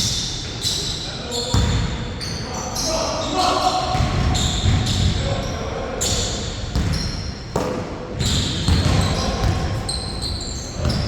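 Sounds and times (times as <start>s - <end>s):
sneakers squeaking on floor: 0.0s - 11.0s
basketball bouncing: 6.7s - 9.7s.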